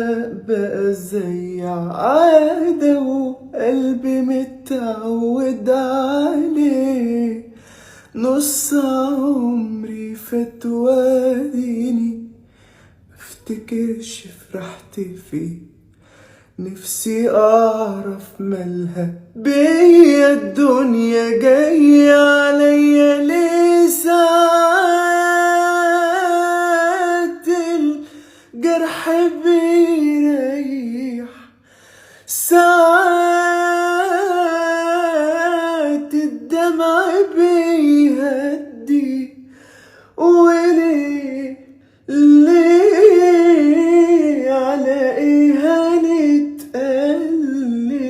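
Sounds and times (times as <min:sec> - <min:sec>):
solo voice singing: 0:00.0 - 0:12.4, 0:13.2 - 0:15.8, 0:16.6 - 0:31.6, 0:32.2 - 0:48.0.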